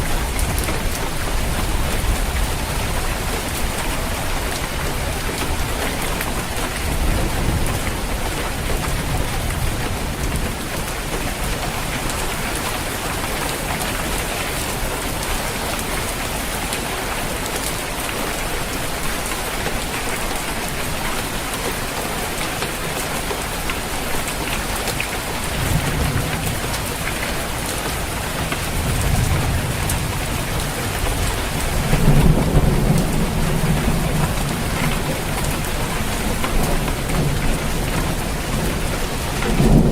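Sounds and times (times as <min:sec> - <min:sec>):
heavy rain on a roof: 0:00.0 - 0:39.9
thunder rumbling: 0:28.3 - 0:39.9.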